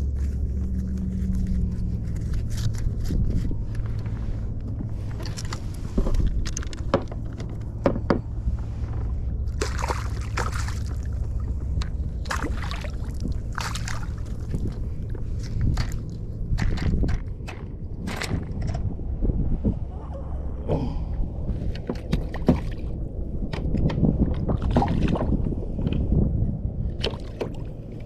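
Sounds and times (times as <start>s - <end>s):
steady low hum: 0.0s - 28.0s
water splashing against kayak: 9.5s - 17.0s, 21.6s - 23.0s, 24.4s - 25.6s.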